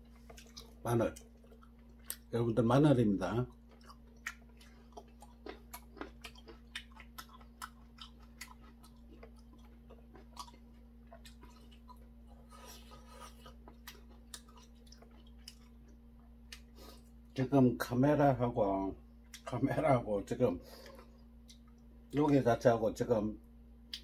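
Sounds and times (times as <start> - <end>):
person chewing: 0.0 - 2.3, 3.5 - 17.4, 20.6 - 22.2
steady low hum: 0.0 - 24.0.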